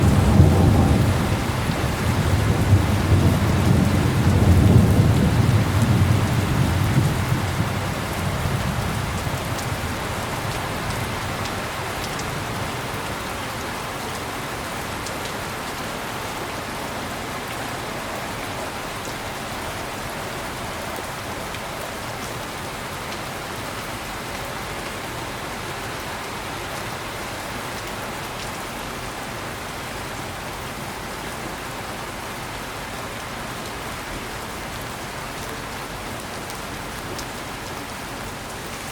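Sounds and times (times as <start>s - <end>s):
thunder rolling: 0.0s - 9.2s
heavy rain falling: 0.0s - 38.9s.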